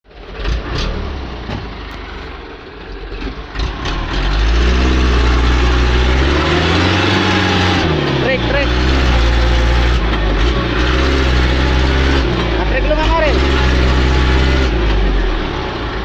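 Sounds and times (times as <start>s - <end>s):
engine knocks: 0.1s - 16.0s
truck engine revving under strain: 0.1s - 16.0s.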